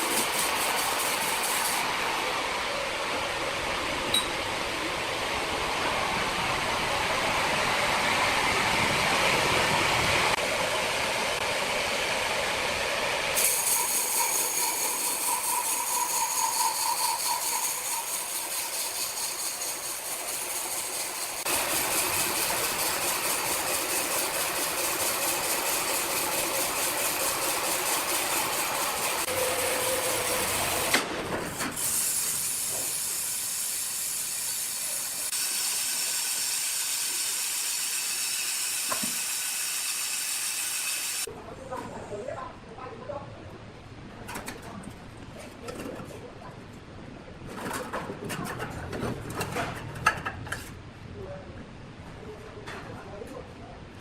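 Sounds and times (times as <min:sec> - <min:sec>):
sawmill machinery hissing: 0:00.0 - 0:41.3.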